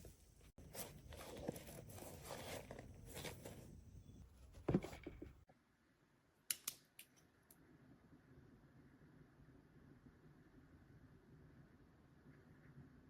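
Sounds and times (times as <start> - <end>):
rustling crinkling handling noise: 0.0 - 3.9.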